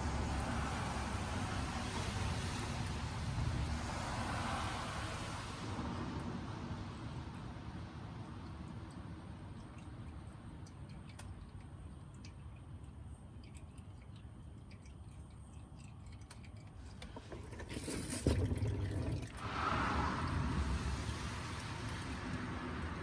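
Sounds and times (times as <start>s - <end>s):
low steady rumble: 0.0s - 17.6s, 18.5s - 23.0s
liquid dripping and trickling: 0.0s - 23.0s
rush of noise: 19.4s - 23.0s.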